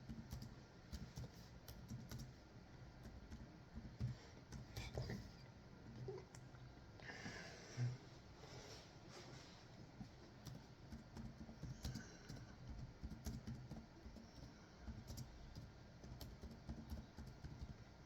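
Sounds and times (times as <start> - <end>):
typing on a keyboard: 0.0 - 2.4, 10.4 - 18.0.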